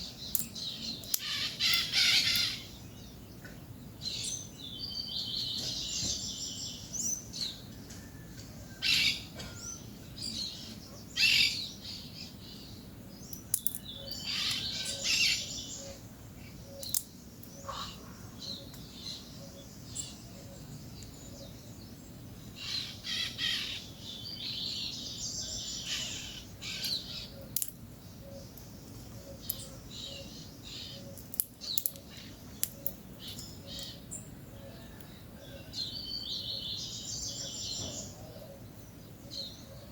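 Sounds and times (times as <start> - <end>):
parakeets chattering: 1.1 - 2.7.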